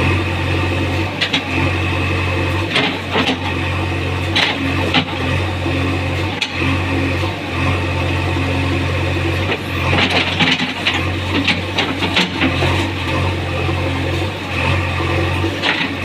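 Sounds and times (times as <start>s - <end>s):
diesel engine running: 0.0s - 16.0s
sharp knocks and clatter: 10.0s - 12.8s.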